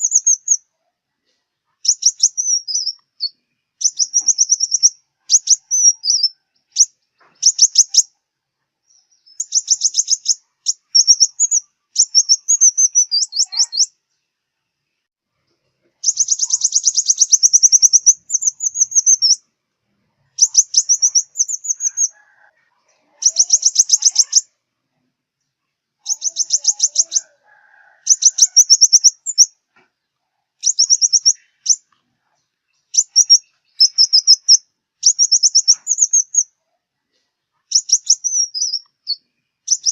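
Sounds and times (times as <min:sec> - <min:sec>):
sunbird song high rapid trills: 0:16.0 - 0:19.4, 0:23.2 - 0:24.6, 0:26.0 - 0:27.3, 0:33.0 - 0:36.5.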